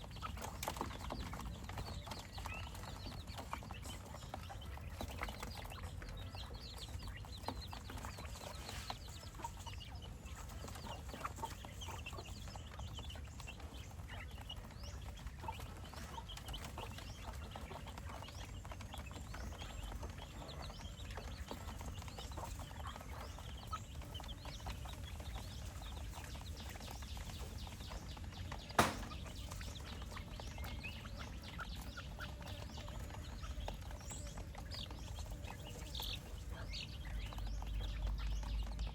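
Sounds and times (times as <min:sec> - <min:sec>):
quail chirping and clucking: 0:00.0 - 0:38.9
sharp knock: 0:28.8 - 0:29.2.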